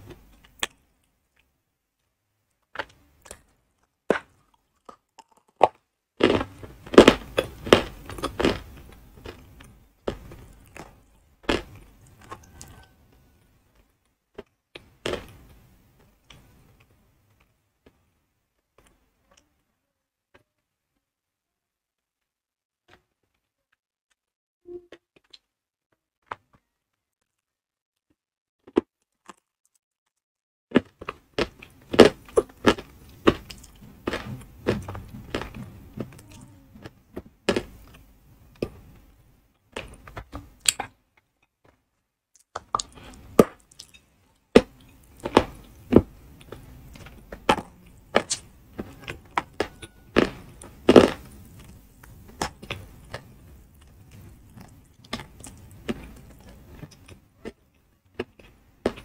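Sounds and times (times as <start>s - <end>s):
chewing and crunching clay: 2.6s - 13.4s, 28.6s - 39.0s, 42.3s - 59.0s.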